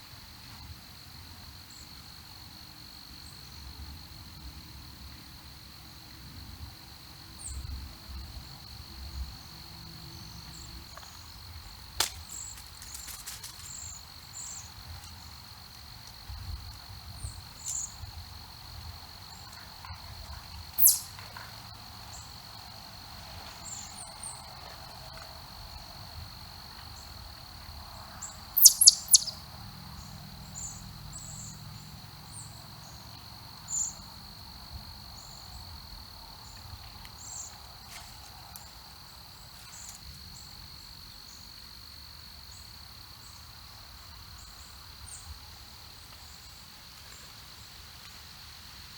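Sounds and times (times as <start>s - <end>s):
high insect drone: 0.6s - 47.8s
loud sharp bird call: 20.8s - 21.1s, 28.6s - 29.4s
small birds chirping: 20.8s - 21.2s, 28.2s - 29.4s.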